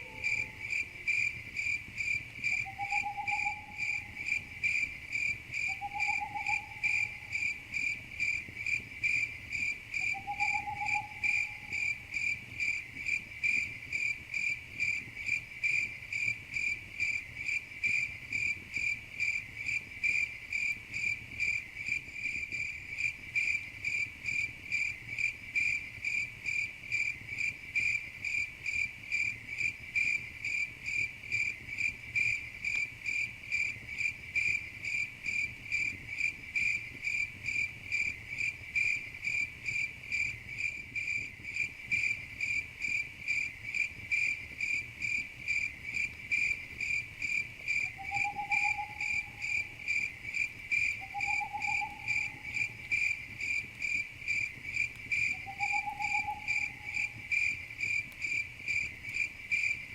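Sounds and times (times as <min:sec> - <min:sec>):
faint whistle-like calls: 0:00.0 - 0:01.2, 0:02.5 - 0:04.5, 0:05.6 - 0:07.4, 0:10.0 - 0:12.0, 0:47.8 - 0:50.0, 0:50.9 - 0:53.1, 0:55.2 - 0:57.2
crickets chirping: 0:00.0 - 0:59.9.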